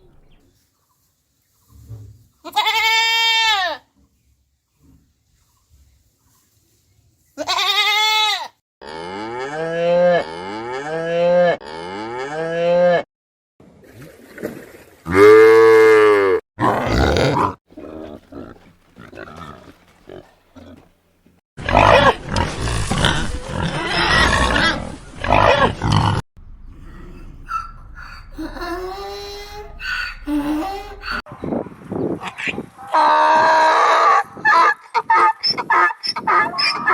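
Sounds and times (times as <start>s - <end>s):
long hoarse animal call: 15.1s - 20.8s
animal calls: 26.8s - 28.7s, 29.7s - 31.2s.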